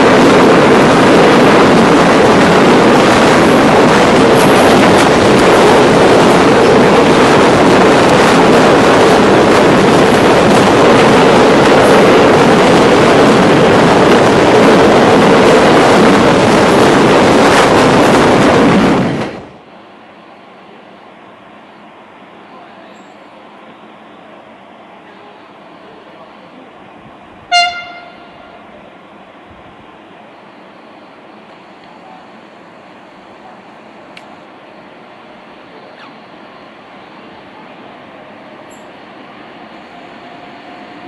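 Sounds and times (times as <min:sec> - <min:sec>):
freight train wheels rolling: 0:00.0 - 0:20.9.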